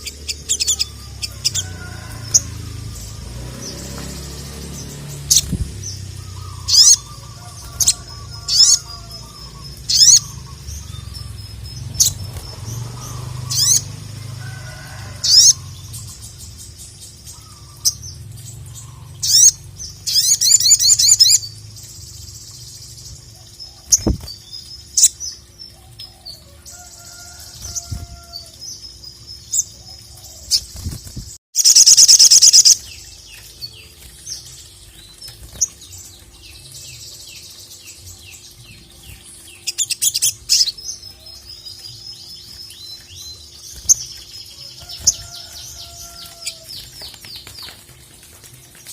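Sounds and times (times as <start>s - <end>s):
sunbird chirping: 0.0s - 48.9s
rapid bird trill: 4.2s - 14.0s, 30.4s - 34.7s.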